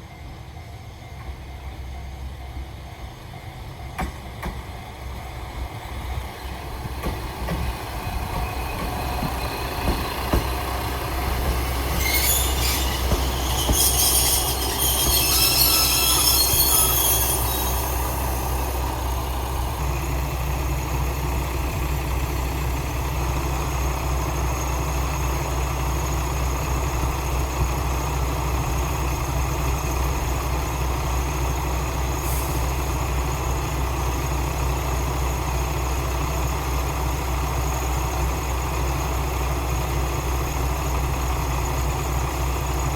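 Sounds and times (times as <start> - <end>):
train wheels squealing: 6.0 - 34.4.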